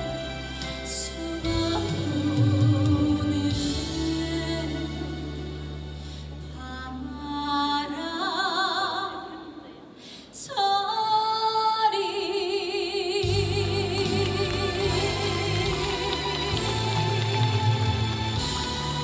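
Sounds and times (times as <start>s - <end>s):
woman singing with vibrato: 0.8s - 5.6s, 6.6s - 19.0s
bass line: 13.2s - 19.0s
instrumental accompaniment: 13.2s - 19.0s.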